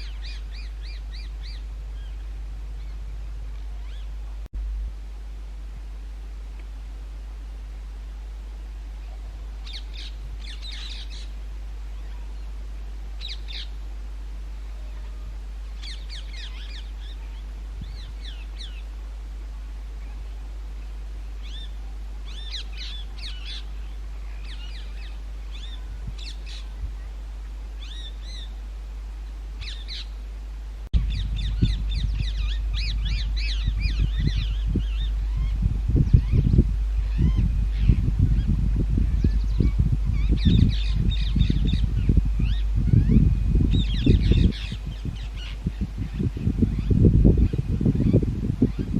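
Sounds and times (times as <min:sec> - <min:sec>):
parakeets calling: 0:00.0 - 0:03.0, 0:09.0 - 0:12.6, 0:13.2 - 0:13.8, 0:14.7 - 0:18.9, 0:21.4 - 0:26.8, 0:27.8 - 0:28.6, 0:29.6 - 0:30.2, 0:31.0 - 0:48.9
loud low rumble: 0:07.2 - 0:48.9.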